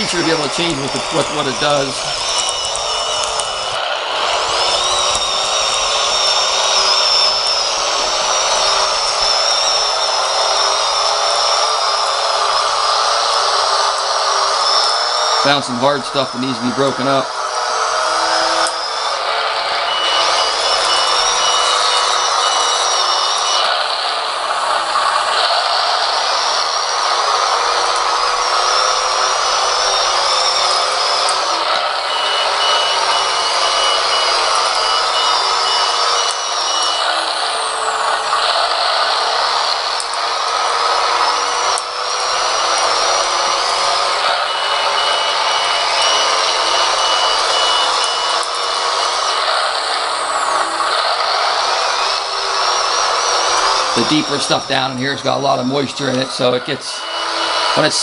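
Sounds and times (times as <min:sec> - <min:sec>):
high-pitched reverse beeper: 0:00.0 - 0:58.0
simulated diesel engine from small speaker: 0:00.0 - 0:58.0.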